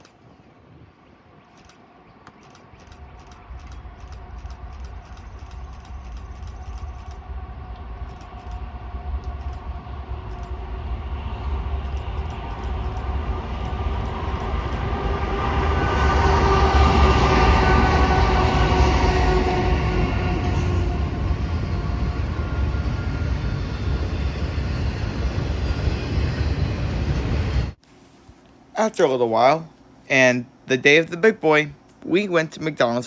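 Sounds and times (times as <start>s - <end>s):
freight train diesel rumble: 2.8s - 27.8s.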